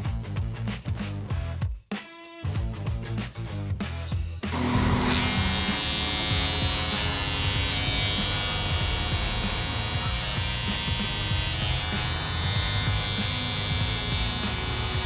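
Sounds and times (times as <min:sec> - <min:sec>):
electric hair clipper buzzing: 0:04.5 - 0:15.0.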